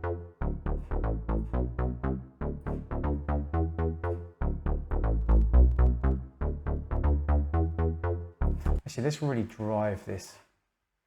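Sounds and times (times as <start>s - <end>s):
synth bass line: 0.0s - 8.8s.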